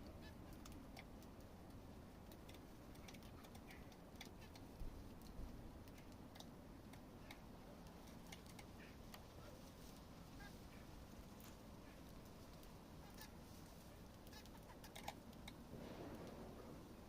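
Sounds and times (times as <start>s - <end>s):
light ticks and taps: 0.0s - 10.1s.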